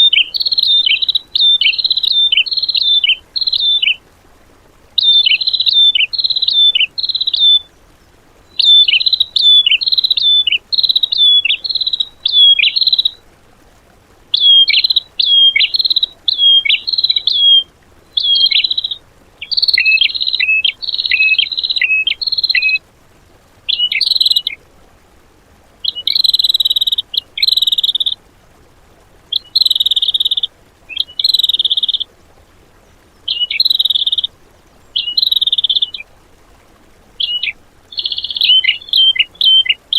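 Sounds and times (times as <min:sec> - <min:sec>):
songbird whistling rapid song: 0:00.0 - 0:04.0, 0:05.0 - 0:07.8, 0:08.4 - 0:13.2, 0:14.3 - 0:22.8, 0:23.7 - 0:24.6, 0:25.8 - 0:28.2, 0:29.3 - 0:32.1, 0:33.1 - 0:36.1, 0:37.2 - 0:39.9.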